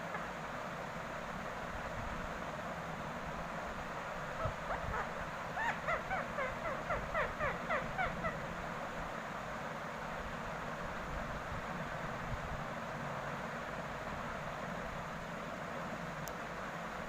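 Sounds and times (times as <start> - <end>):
parakeet harsh calls: 4.4 - 8.5.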